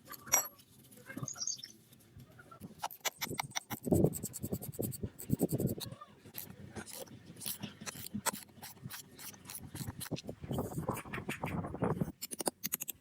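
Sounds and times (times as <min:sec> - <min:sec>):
clicks and scrapes of hand work: 0:01.9 - 0:13.0
rapid even ticks: 0:02.6 - 0:13.0.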